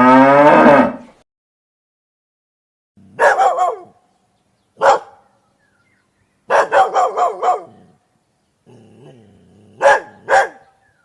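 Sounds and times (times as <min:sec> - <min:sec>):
dog barking: 0:03.2 - 0:04.0, 0:04.8 - 0:05.3, 0:06.5 - 0:07.9, 0:09.8 - 0:10.8.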